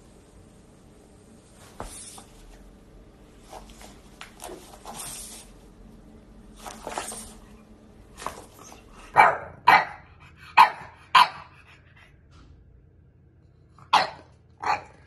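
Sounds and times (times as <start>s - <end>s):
puppy barking: 9.1s - 11.6s, 13.8s - 15.0s.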